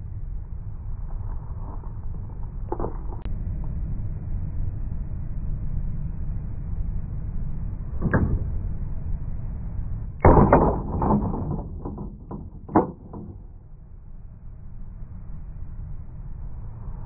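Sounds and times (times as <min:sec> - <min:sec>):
toy truck hitting cement: 0:10.2 - 0:13.5
truck bouncing knocks: 0:10.2 - 0:13.6.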